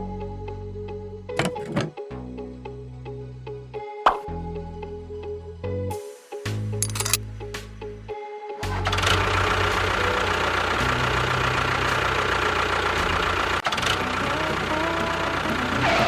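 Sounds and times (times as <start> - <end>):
engine running at idle: 8.6 - 16.0.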